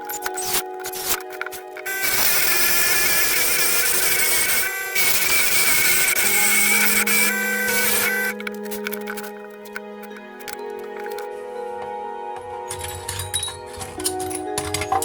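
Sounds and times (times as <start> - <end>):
power tool whining: 0.0 - 8.9
background music: 0.0 - 15.0.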